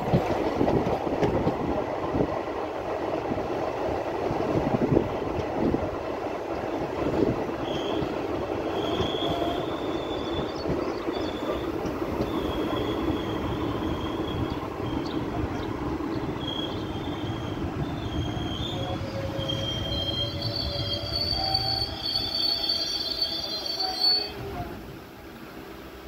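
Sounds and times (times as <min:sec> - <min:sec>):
train wheels rumbling on rails: 0:00.0 - 0:26.0
high thin wheel squeal: 0:16.4 - 0:24.5.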